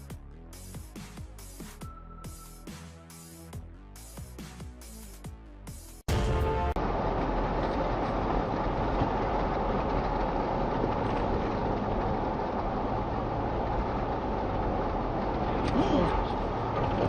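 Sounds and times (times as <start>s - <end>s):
car road and engine noise: 6.0s - 17.0s.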